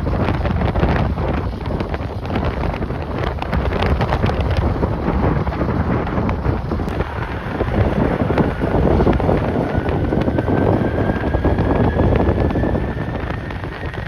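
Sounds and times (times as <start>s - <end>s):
wind buffeting microphone: 0.0s - 14.0s
faint jet engine whine: 6.7s - 14.0s.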